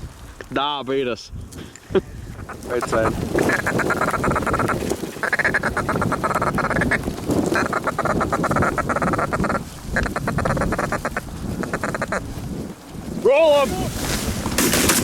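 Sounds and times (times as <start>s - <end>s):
goose call clucks: 2.3s - 12.3s.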